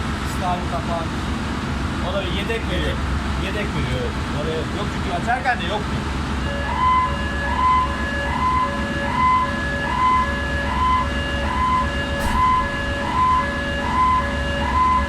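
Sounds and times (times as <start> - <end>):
two-tone alarm signal: 6.4 - 15.0
low machinery hum: 11.3 - 15.0.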